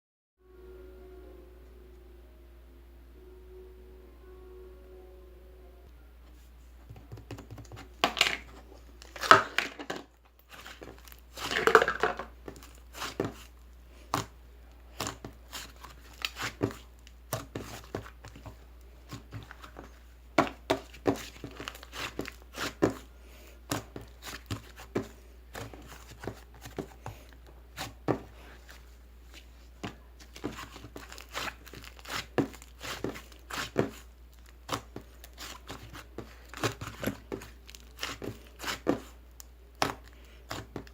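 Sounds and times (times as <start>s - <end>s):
material crinkling and rustling: 8.1s - 13.7s, 15.0s - 23.0s, 23.7s - 40.9s.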